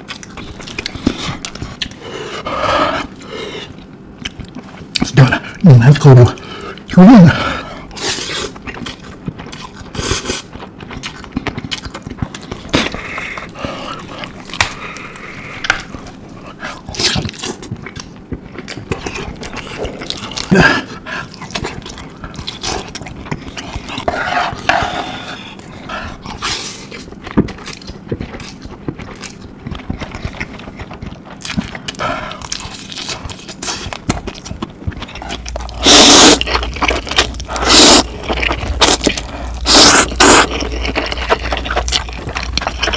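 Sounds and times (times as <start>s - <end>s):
eating noodles with slurps: 35.8s - 41.9s.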